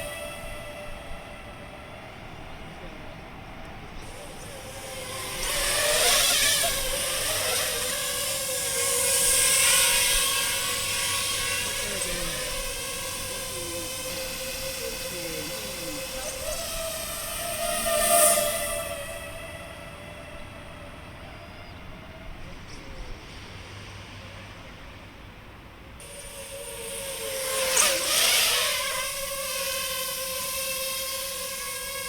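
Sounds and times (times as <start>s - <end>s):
drone propellers whining: 0.0s - 24.2s, 26.0s - 32.0s.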